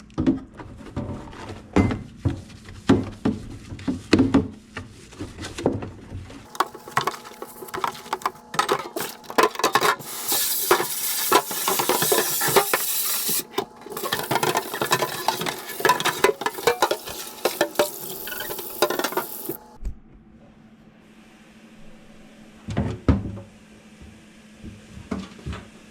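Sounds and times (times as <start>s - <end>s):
dishes clattering in sink: 6.5s - 19.6s
scrubbing: 6.5s - 19.6s.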